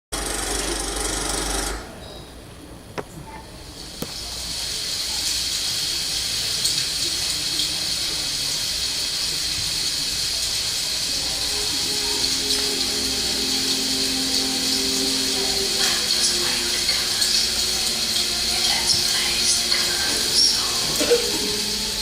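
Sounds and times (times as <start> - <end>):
steady hiss: 2.3 - 22.0.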